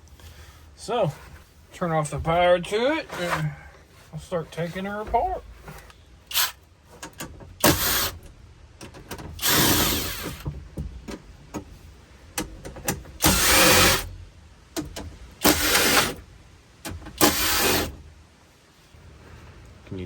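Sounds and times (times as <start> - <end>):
cordless drill whirring: 6.3 - 6.6, 7.6 - 8.2, 9.4 - 10.4, 13.2 - 14.1, 15.4 - 16.2, 17.2 - 18.0.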